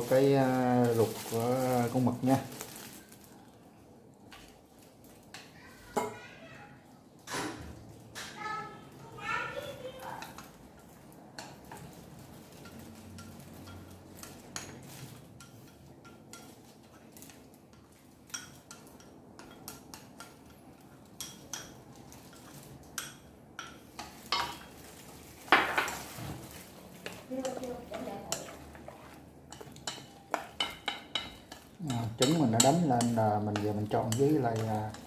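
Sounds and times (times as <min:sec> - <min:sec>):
utensil clinking against bowl: 0:27.4 - 0:35.0.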